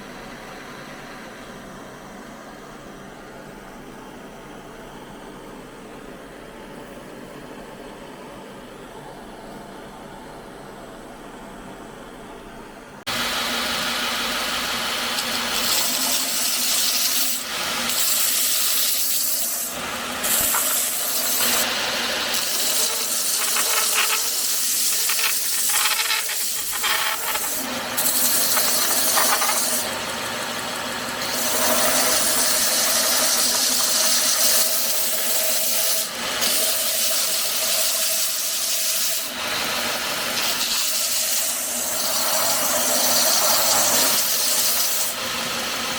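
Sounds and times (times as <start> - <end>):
power tool hissing and humming: 13.1 - 45.9.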